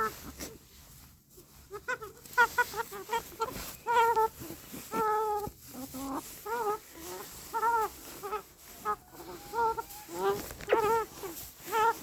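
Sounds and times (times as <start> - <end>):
chicken calling: 1.6 - 12.0.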